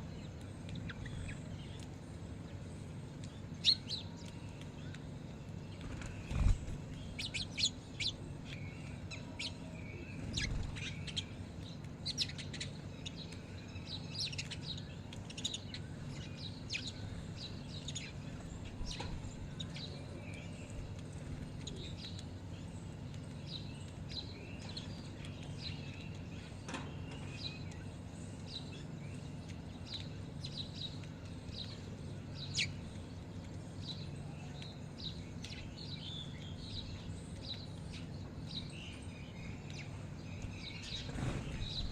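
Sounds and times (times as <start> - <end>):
birds chirping: 0.0 - 41.9
steady low hum: 0.0 - 41.9.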